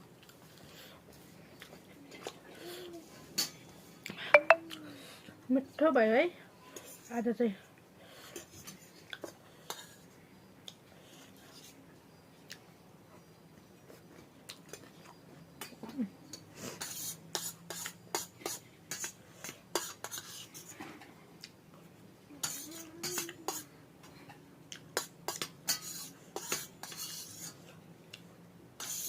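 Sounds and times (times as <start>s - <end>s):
cutlery clinking and scraping on dish: 22.4s - 23.7s, 25.0s - 27.7s, 28.8s - 29.0s.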